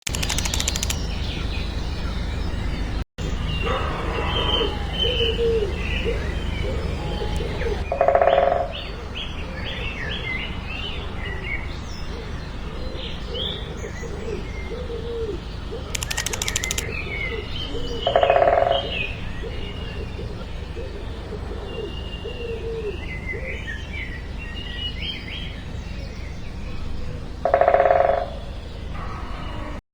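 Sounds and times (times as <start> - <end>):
birds chirping and cooing: 3.6 - 8.0, 12.0 - 24.0.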